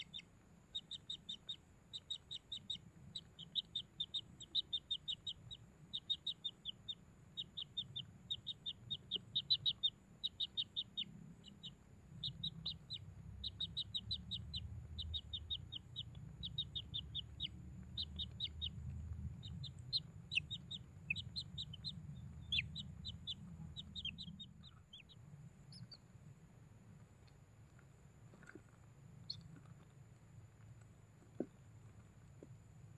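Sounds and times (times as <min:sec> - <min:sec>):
bird chirping: 0:00.0 - 0:26.3, 0:28.3 - 0:29.9
faint steady high whine: 0:00.0 - 0:32.9.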